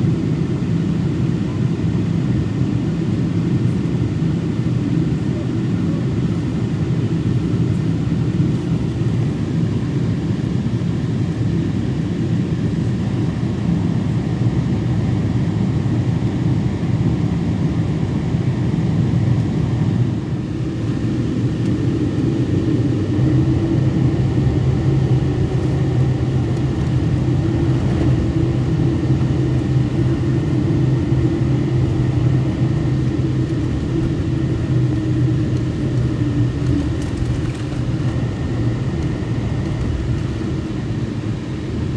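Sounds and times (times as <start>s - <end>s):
airplane cabin engine drone: 0.0s - 41.9s
low hum: 20.9s - 41.9s.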